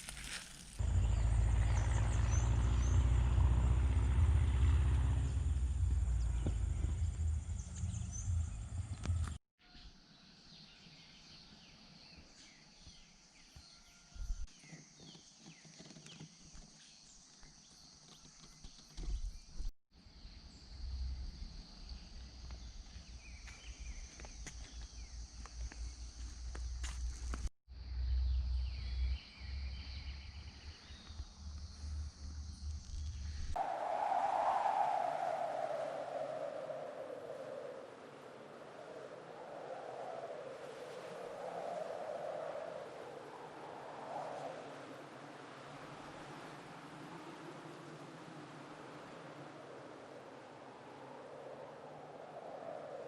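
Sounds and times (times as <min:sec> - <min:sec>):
wind rumble on microphone: 0:00.8 - 0:09.4, 0:14.1 - 0:16.6, 0:18.2 - 0:53.0
bird chirps: 0:05.2 - 0:26.3
high insect drone: 0:30.7 - 0:34.0.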